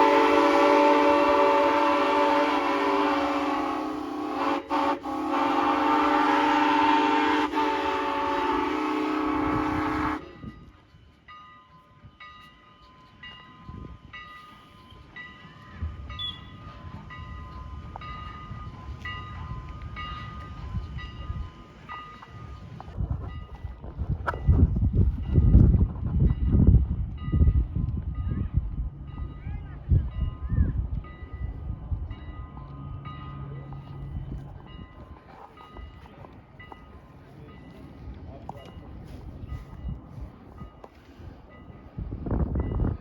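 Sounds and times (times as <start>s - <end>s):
train horn blast: 0.0s - 10.4s
low train rumble: 0.0s - 43.0s
crossing bell ringing: 10.2s - 23.8s, 24.4s - 43.0s.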